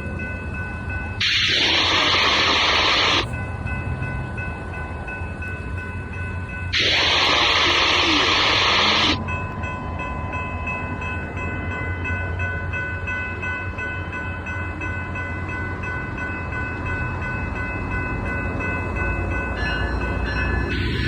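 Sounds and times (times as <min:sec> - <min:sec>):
train rumbling past: 0:00.0 - 0:21.0
steady high tones: 0:01.2 - 0:03.3, 0:06.8 - 0:09.2, 0:20.6 - 0:21.0.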